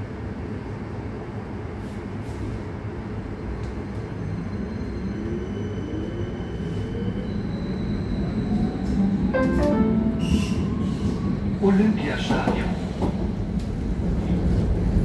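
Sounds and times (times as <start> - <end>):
train wheels rumbling on rail: 0.0 - 15.0
brief chime tone: 9.4 - 10.7.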